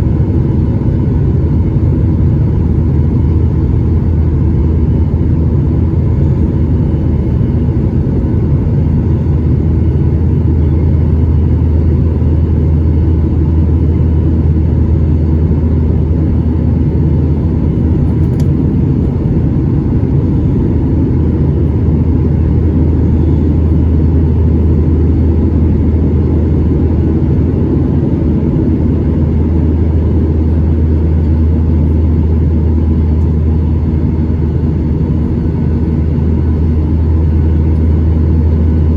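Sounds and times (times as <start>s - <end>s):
airplane cabin engine drone: 0.0s - 38.9s.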